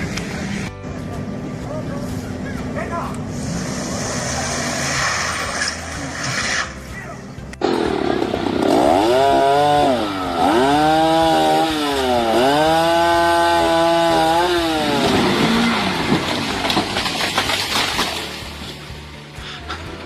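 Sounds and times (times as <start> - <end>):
chainsaw engine revving: 7.6 - 18.3
sharp cracks: 14.9 - 18.8.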